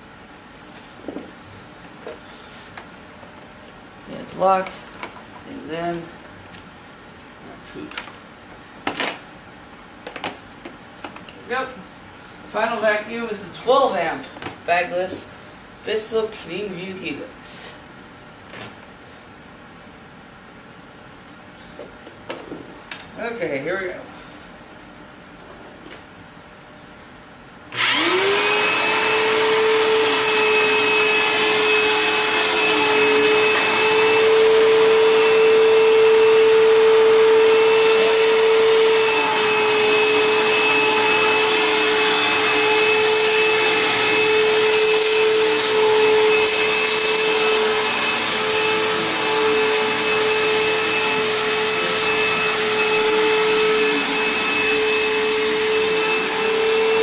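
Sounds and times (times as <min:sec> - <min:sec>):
vacuum cleaner motor humming: 0:27.7 - 0:57.0.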